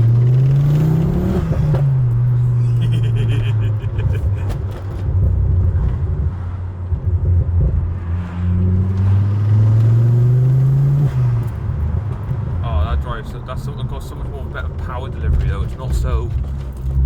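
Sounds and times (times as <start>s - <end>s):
car engine pulling hard: 0.0s - 17.0s.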